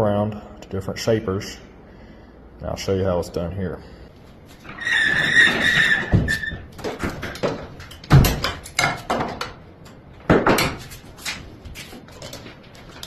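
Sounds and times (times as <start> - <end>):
high squeal: 4.7 - 6.7.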